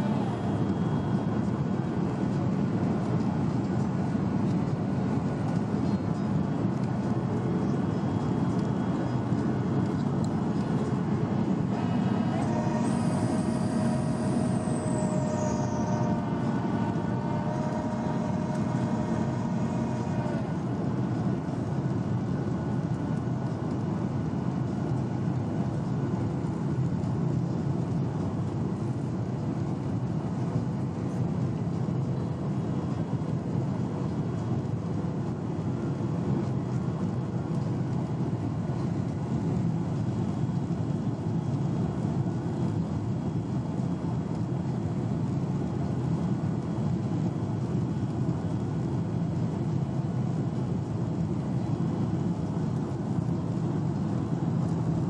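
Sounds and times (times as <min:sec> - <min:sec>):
airplane cabin engine rumble: 0:00.0 - 0:55.0
steady engine tones: 0:06.5 - 0:23.5.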